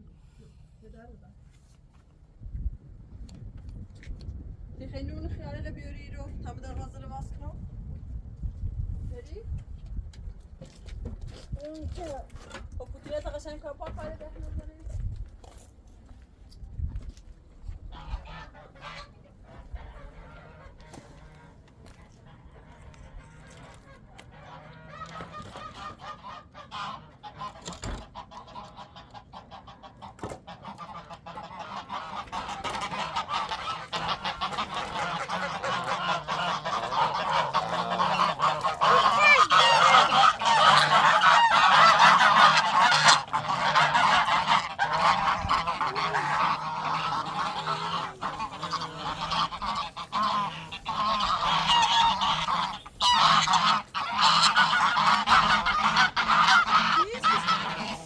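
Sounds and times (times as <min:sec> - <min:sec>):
many birds calling: 0:31.2 - 0:58.0.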